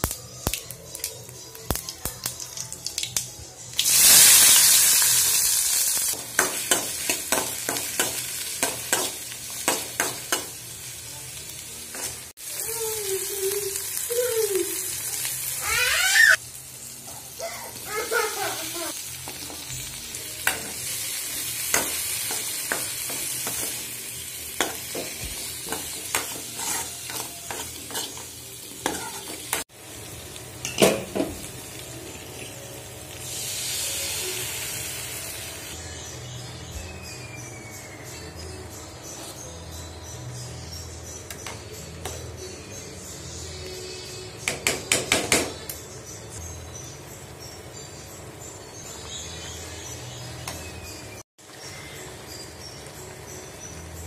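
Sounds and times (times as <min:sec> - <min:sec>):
food sizzling in hot oil: 0:00.0 - 0:36.3
steel spoon scraping a pan: 0:25.5 - 0:29.6.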